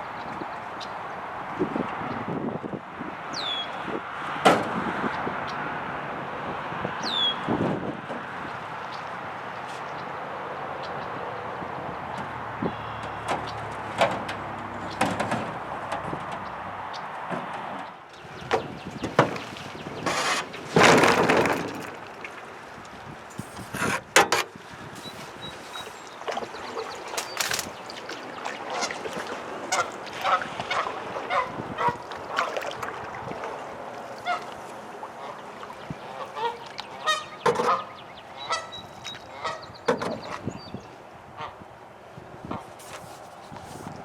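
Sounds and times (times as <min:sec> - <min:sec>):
waterfowl honking: 0:23.4 - 0:32.6, 0:34.1 - 0:41.6.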